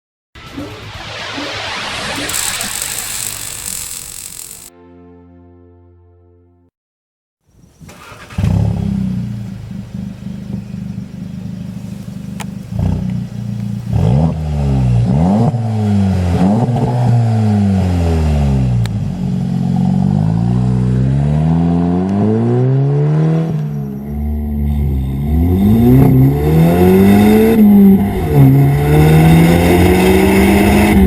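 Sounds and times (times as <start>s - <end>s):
car engine starting and revving: 7.8s - 31.0s.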